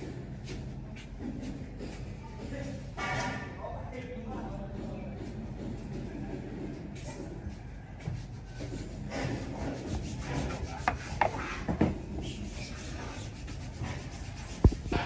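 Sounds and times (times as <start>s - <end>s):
scraping and rubbing: 8.5s - 15.0s.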